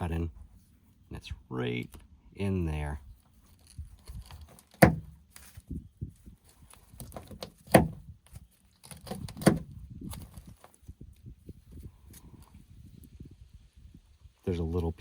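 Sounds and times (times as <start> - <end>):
light clicks and handling noise: 3.1 - 12.6.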